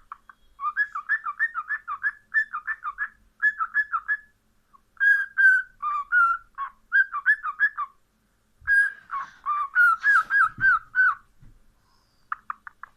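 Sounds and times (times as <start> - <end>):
cockatiel whistling: 0.1 - 4.3, 5.0 - 8.0, 8.6 - 11.3.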